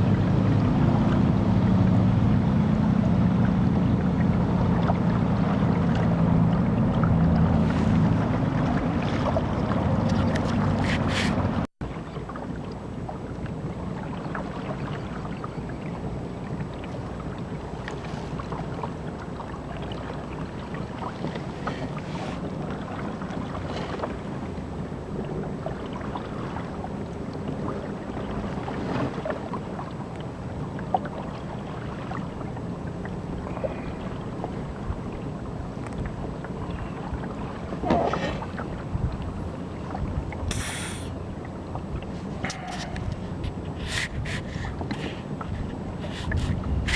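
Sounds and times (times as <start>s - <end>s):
low steady motor hum: 0.0s - 46.9s
water splashing along hull: 0.0s - 46.9s
wind on microphone: 35.9s - 41.1s, 41.8s - 46.9s.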